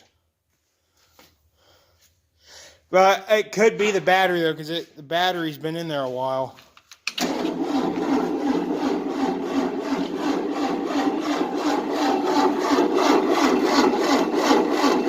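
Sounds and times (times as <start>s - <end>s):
starter cranking engine: 7.1s - 15.0s.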